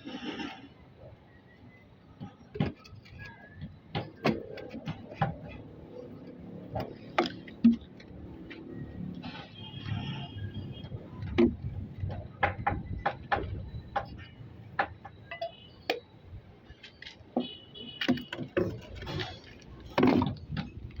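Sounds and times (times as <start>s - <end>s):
knocks and clicks of hand work: 11.3s - 16.0s.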